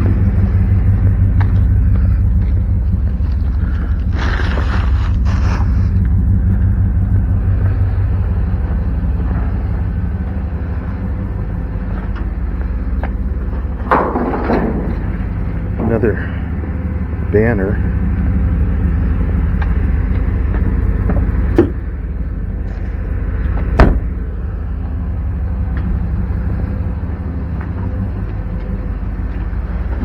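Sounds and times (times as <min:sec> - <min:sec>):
idling engine rumble: 0:00.0 - 0:30.0
scraping rustle: 0:03.0 - 0:06.2.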